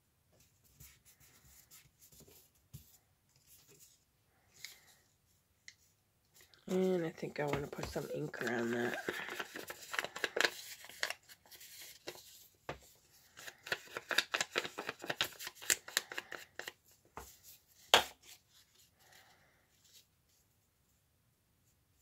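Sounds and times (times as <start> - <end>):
paper rustling: 6.4 - 19.2.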